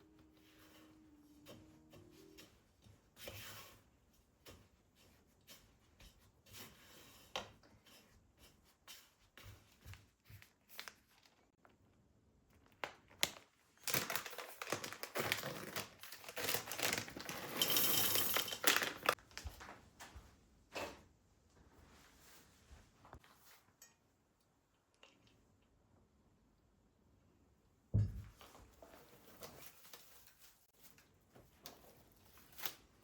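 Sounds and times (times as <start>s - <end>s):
packaging crinkling: 12.6s - 19.4s.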